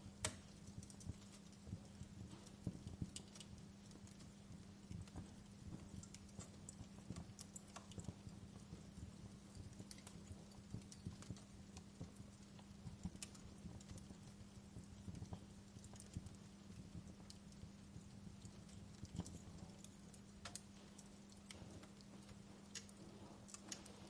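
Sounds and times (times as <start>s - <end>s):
low fire rumble: 0.0s - 24.0s
sharp snaps of fire: 0.0s - 24.0s
wood fire crackling: 0.0s - 24.0s.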